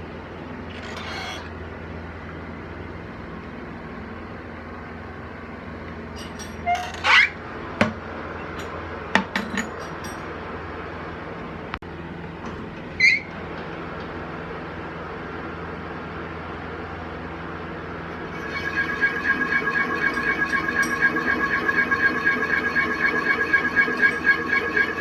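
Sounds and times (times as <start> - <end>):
metal on metal squeals: 0.7 - 1.5, 6.2 - 7.4, 18.3 - 25.0
lathe humming: 18.3 - 25.0.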